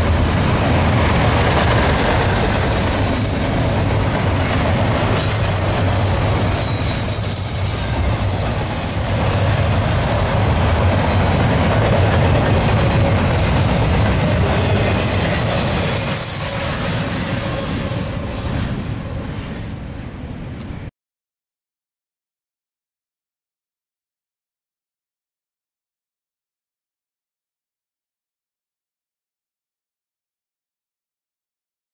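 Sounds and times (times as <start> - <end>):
thin high wheel squeals: 4.9 - 9.2, 15.3 - 19.4.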